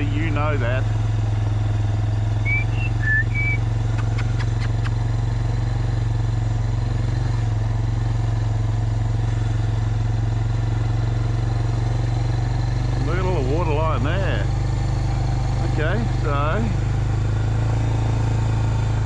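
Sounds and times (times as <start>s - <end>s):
engine humming at low revs: 0.0s - 19.0s
short high chirps: 2.5s - 4.9s.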